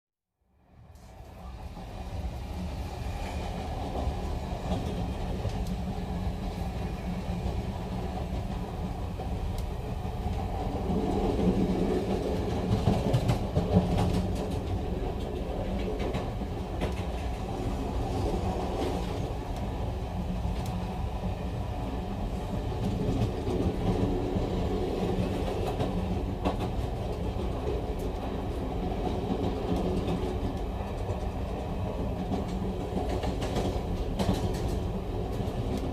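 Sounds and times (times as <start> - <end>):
train wheels clattering over rail joints: 11.3 - 17.7, 29.0 - 35.8.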